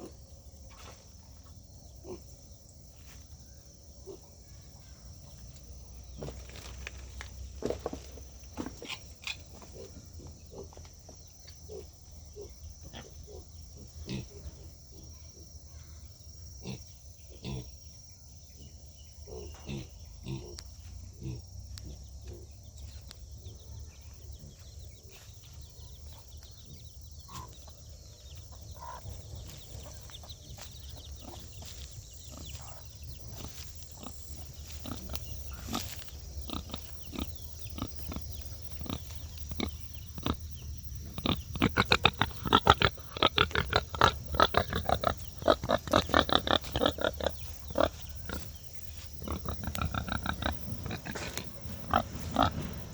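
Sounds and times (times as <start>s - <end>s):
pigs grunting and snuffling: 7.6s - 11.0s, 11.6s - 15.1s, 16.6s - 17.8s, 18.6s - 22.7s, 28.4s - 52.9s.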